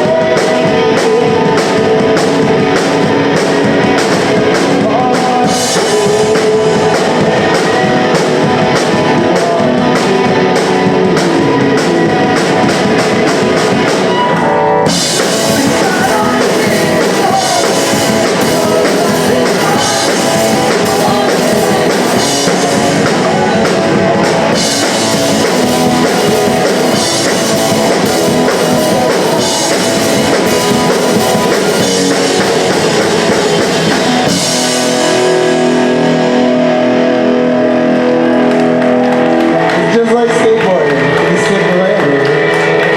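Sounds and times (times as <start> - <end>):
person singing: 0.0 - 36.7
distorted electric guitars: 0.0 - 42.9
drum kit: 0.0 - 42.9.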